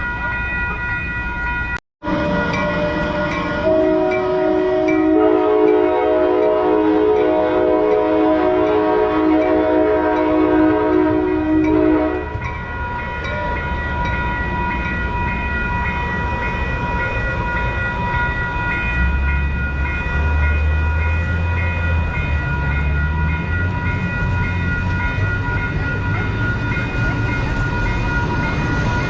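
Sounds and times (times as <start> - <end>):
train rumbling: 0.0 - 29.0
train horn blast: 2.0 - 12.4.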